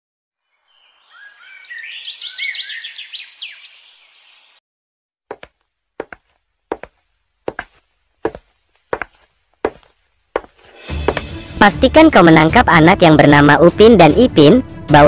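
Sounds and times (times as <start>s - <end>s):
birds chirping and whistling: 0.5s - 4.6s
sharp footsteps: 5.3s - 11.5s.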